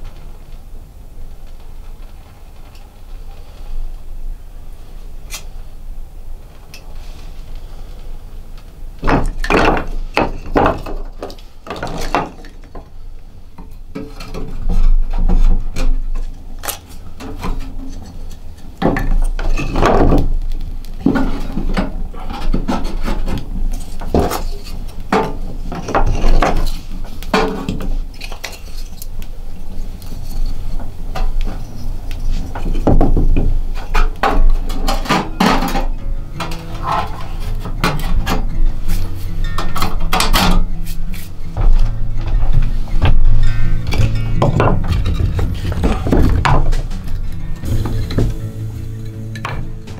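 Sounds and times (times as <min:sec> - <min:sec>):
hard objects knocking and clattering: 0:09.0 - 0:12.9, 0:32.5 - 0:38.6, 0:41.6 - 0:48.6
steady low rumble: 0:36.2 - 0:49.9.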